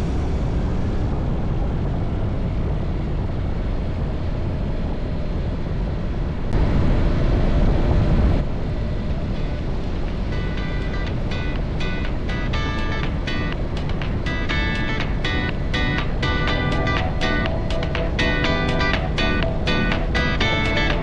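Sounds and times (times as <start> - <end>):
motorcycle engine rumble: 0.0 - 3.7.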